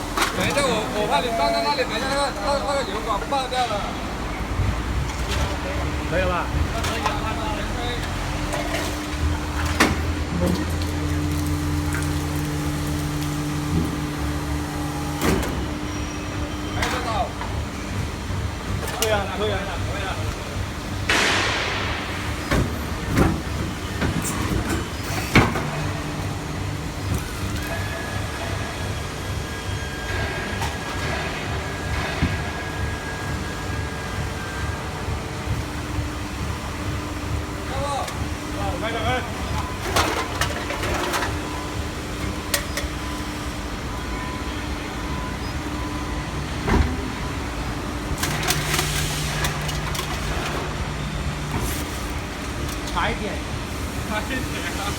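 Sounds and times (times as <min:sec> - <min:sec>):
hydraulic pump motor humming: 0:00.0 - 0:21.1
hydraulic machine humming: 0:00.0 - 0:54.9
metal clanks and knocks: 0:39.4 - 0:43.3
clicks and clanks: 0:39.5 - 0:41.4, 0:48.2 - 0:50.8.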